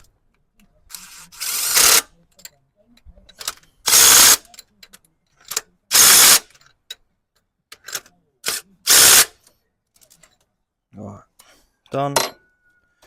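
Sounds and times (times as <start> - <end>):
drill driving fasteners: 0.9 - 2.1, 3.8 - 4.4, 5.9 - 6.5, 8.4 - 9.3.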